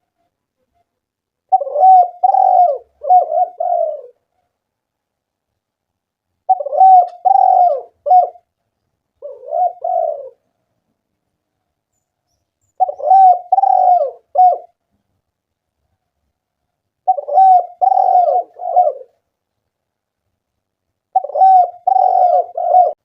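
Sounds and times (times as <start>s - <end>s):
dove cooing: 1.5s - 4.2s, 6.5s - 8.5s, 9.2s - 10.5s, 12.8s - 14.8s, 17.0s - 19.2s, 21.1s - 23.0s.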